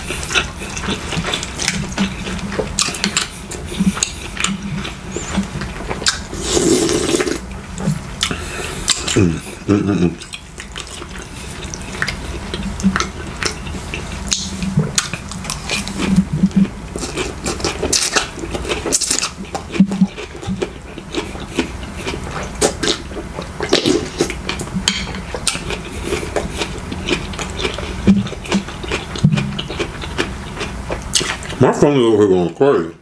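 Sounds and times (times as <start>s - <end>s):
slurping and chewing: 0.0s - 31.6s.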